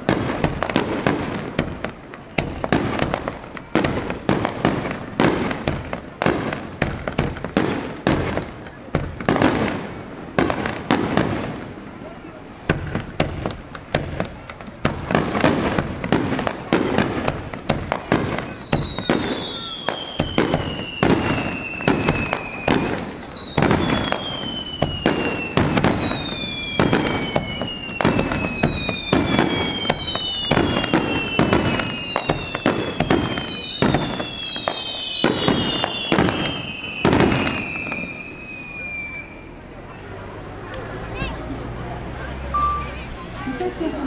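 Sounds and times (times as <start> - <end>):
fireworks bangs: 0.0 - 39.6
falling firework whistles: 15.4 - 39.6.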